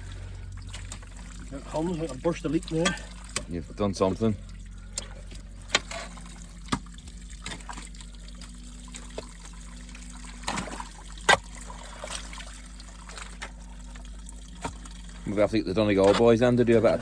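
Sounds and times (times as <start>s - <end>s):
low engine hum: 0.0s - 17.0s
water trickling from a drain: 0.0s - 17.0s.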